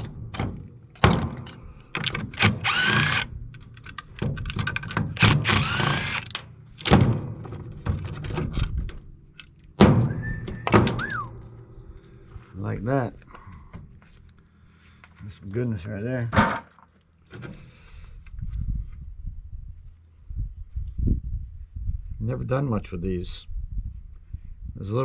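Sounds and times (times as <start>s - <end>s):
metal knocking and clanking: 0.0s - 3.1s, 3.9s - 9.1s, 9.8s - 11.9s.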